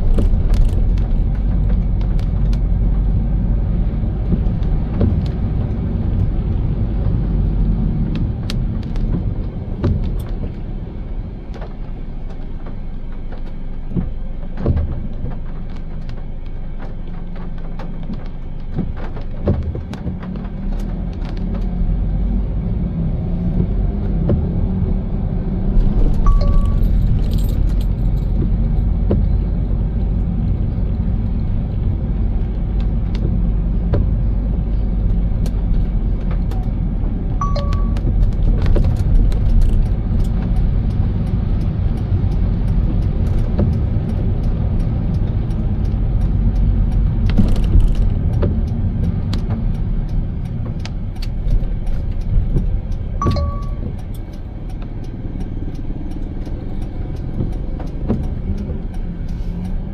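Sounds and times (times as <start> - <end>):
car road noise rumble: 0.0 - 59.9
short high tone: 26.3 - 26.8, 37.4 - 38.0
light ticks: 37.4 - 59.9.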